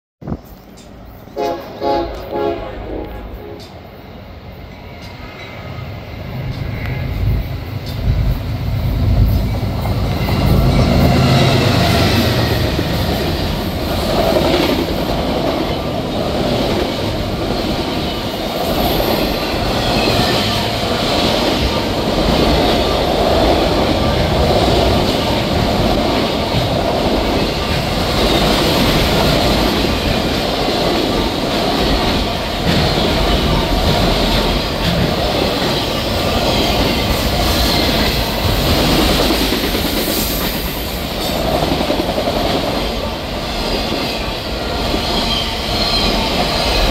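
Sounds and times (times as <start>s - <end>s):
freight train passing: 0.2s - 46.9s.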